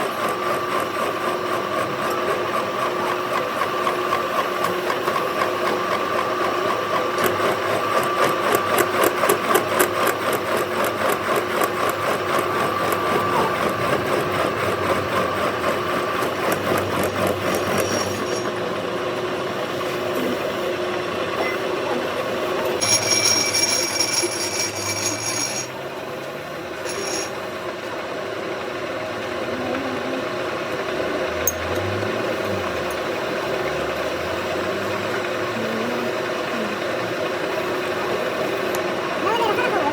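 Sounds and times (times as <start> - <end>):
machine tool working metal: 0.0 - 39.9
high whine: 26.8 - 27.6.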